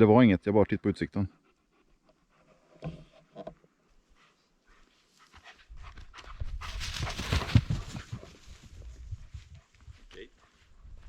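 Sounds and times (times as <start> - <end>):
dog panting: 1.3 - 2.8, 4.1 - 6.8, 9.6 - 11.0.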